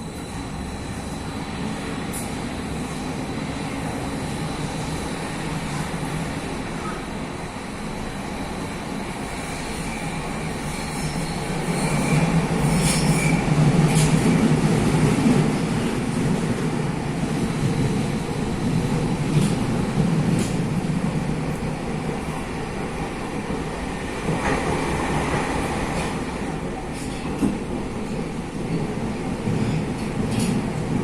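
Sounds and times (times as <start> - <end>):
electric train rumbling: 0.0 - 31.0.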